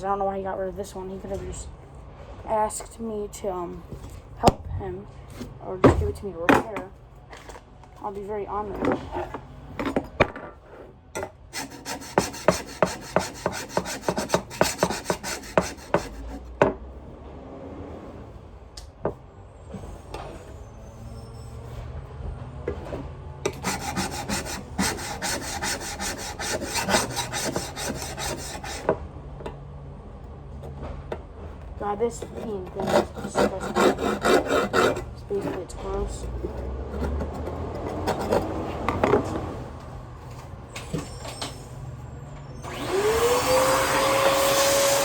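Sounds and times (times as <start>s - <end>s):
scrubbing strokes on plastic part: 11.6s - 16.5s, 23.5s - 28.9s, 31.8s - 39.0s.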